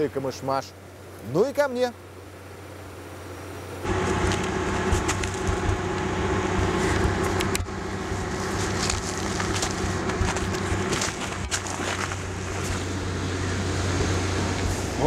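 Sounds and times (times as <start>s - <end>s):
footsteps crunching in snow: 3.8s - 13.0s
car engine idling: 3.8s - 15.0s.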